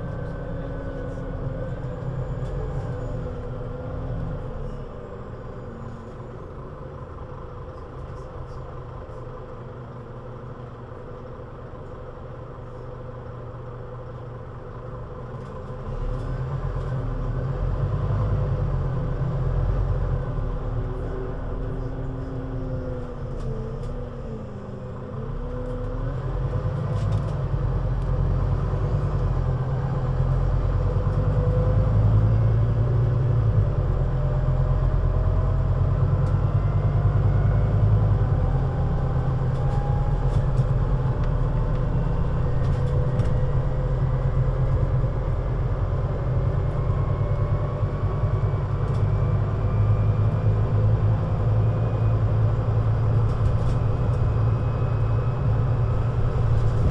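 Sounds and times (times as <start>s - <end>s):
bus engine drone: 0.0s - 56.9s
drivetrain whine: 19.3s - 56.9s.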